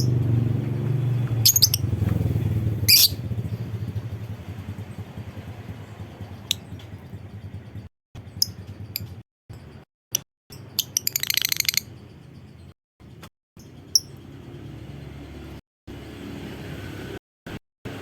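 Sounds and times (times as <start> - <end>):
bird chirping: 1.2 - 2.0, 2.8 - 3.6, 4.7 - 12.8
bird chattering trill: 1.4 - 1.9, 2.9 - 3.2, 8.2 - 9.2, 10.6 - 12.0.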